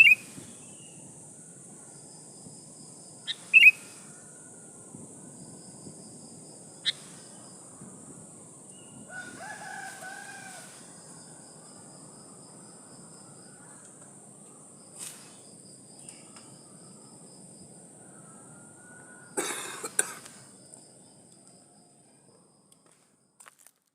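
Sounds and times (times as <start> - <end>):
high-pitched insect drone: 0.0 - 19.4
distant rooster crowing: 7.7 - 13.8, 17.8 - 19.4.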